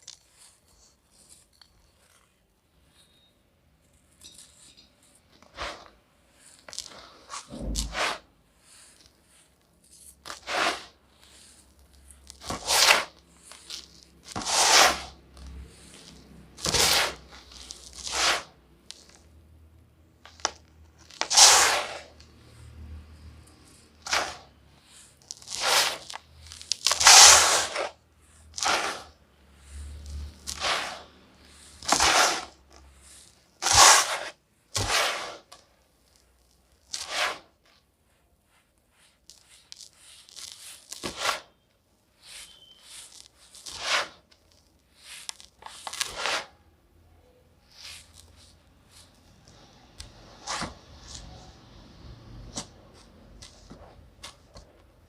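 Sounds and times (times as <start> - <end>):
dry clay crunching: 5.7 - 7.9, 8.7 - 19.3, 20.2 - 22.4, 23.6 - 37.5, 39.1 - 41.6, 42.2 - 46.6.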